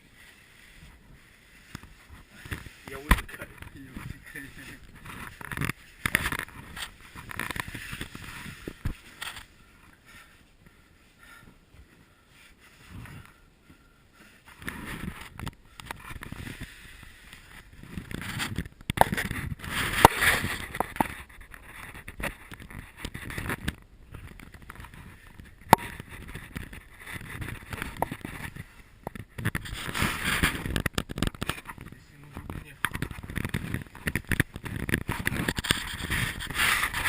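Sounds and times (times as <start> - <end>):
clothing rubbing on stone: 0.1 - 10.5, 29.6 - 31.0, 31.6 - 37.0.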